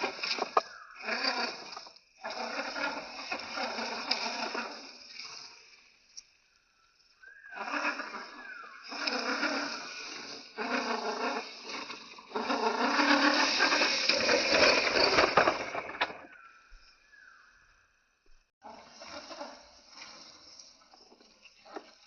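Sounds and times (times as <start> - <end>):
electric motor and gearbox whirring: 0.0 - 6.2, 7.6 - 16.5.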